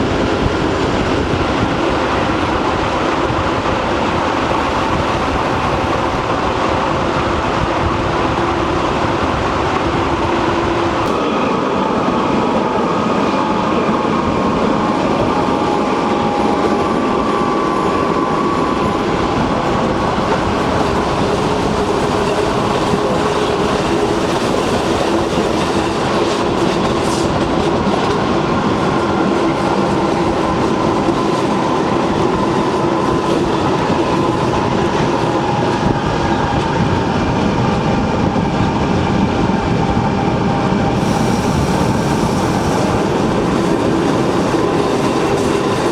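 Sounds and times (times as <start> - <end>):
train rumbling along track: 0.0 - 45.9
clickety-clack of wheels: 19.7 - 36.9, 41.0 - 45.9.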